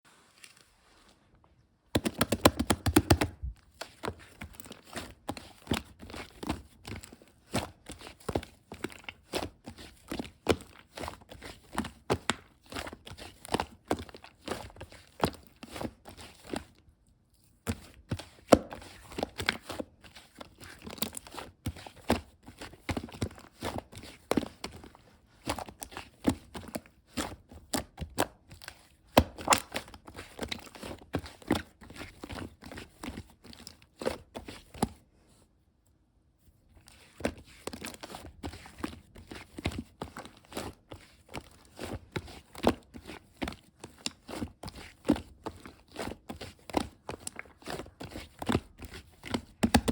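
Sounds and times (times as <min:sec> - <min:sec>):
clicks and taps of handled objects: 0:01.9 - 0:04.6, 0:49.3 - 0:49.9.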